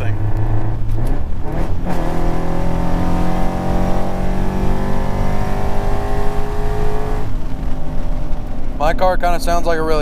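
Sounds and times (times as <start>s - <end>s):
car engine accelerating: 0.0s - 9.0s.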